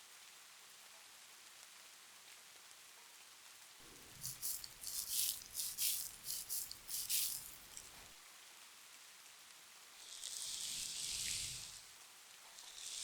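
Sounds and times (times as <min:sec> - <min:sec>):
soft rain: 0:00.0 - 0:13.0
object rattling and crinkling: 0:03.8 - 0:08.1.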